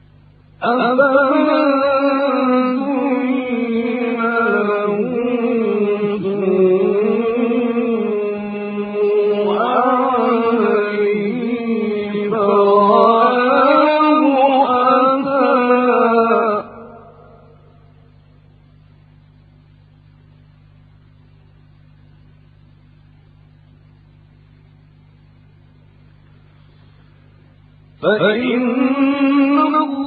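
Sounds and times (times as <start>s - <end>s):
man chanting melodically: 0.6s - 17.8s, 28.0s - 30.0s.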